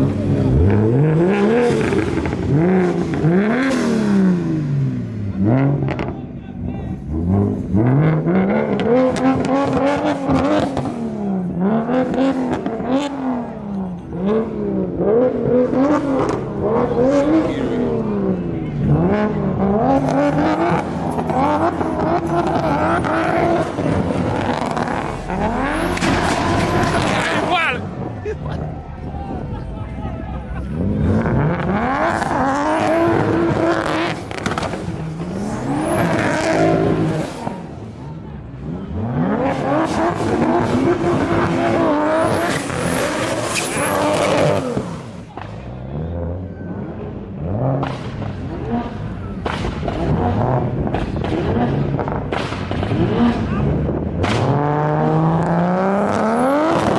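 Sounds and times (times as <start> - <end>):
car engine revving: 0.0 - 56.9
exhaust crackles: 0.0 - 56.9.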